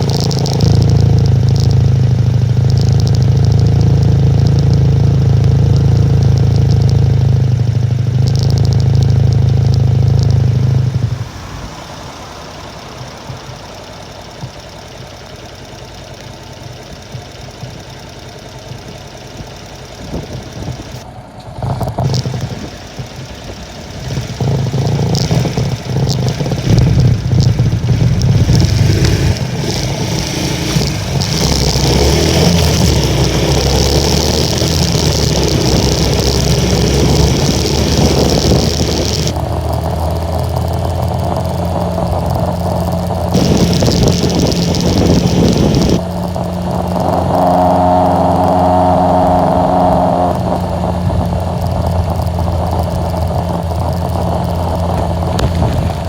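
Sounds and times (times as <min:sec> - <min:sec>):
moped engine running: 0:00.0 - 0:56.0
wind noise: 0:20.0 - 0:56.0.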